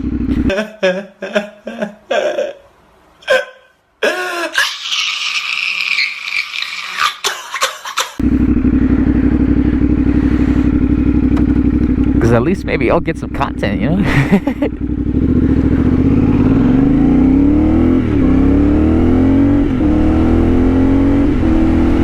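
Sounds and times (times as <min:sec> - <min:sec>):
motorcycle exhaust running: 0:00.0 - 0:00.5, 0:08.2 - 0:22.0.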